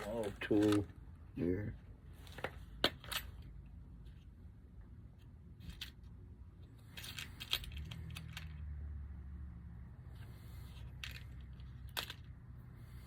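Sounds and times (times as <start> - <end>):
low steady hum: 0.0 - 13.0
small metallic clicks and rattles: 6.8 - 8.8, 10.7 - 12.4.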